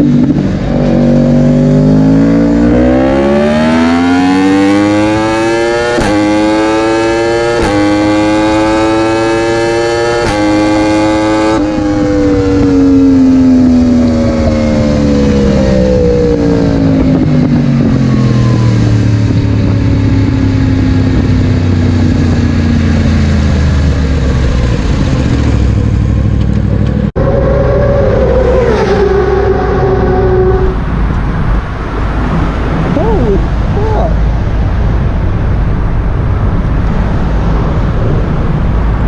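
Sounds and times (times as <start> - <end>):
motorcycle engine revving: 0.0 - 39.0
another engine tone: 11.6 - 34.4.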